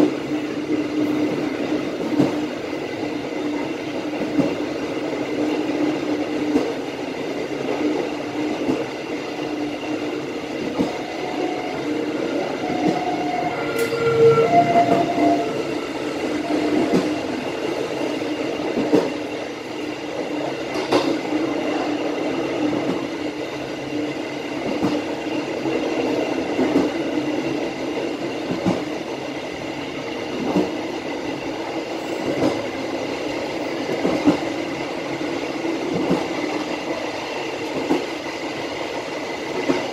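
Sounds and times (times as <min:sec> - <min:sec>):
train wheels rumbling on rails: 0:00.0 - 0:39.9
brief squealing tones: 0:10.9 - 0:16.9.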